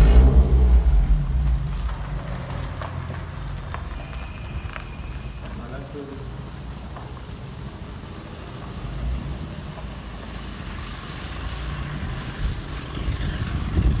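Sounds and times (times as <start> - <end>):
car exhaust rumbling: 0.0 - 4.8.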